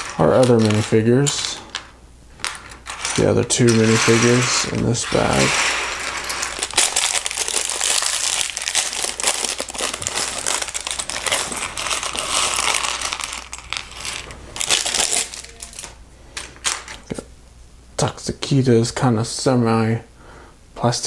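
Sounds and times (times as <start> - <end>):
plastic bag crinkling: 0.0 - 1.8, 2.4 - 17.1
plastic pieces clicking: 0.0 - 17.1.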